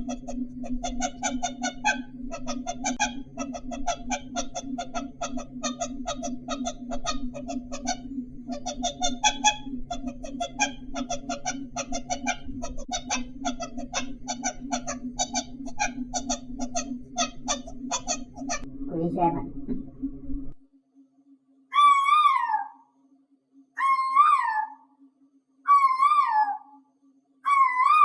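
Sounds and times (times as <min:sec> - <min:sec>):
rapid bird-like calls: 0:00.0 - 0:18.7, 0:21.7 - 0:22.9, 0:23.8 - 0:25.0, 0:25.7 - 0:26.8, 0:27.4 - 0:28.0
steady low hum: 0:00.0 - 0:21.7.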